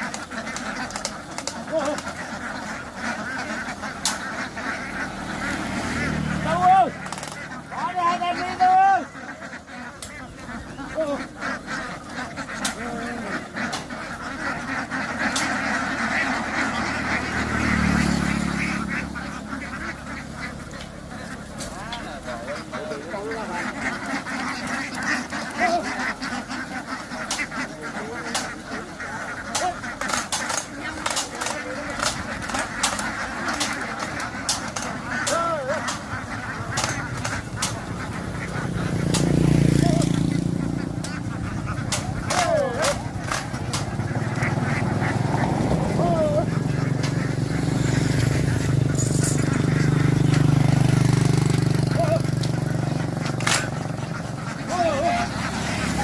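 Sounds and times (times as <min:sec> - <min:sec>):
ducks quacking: 0:00.0 - 0:56.0
waterfowl honking: 0:00.0 - 0:56.0
sharp clicks: 0:53.3 - 0:53.8.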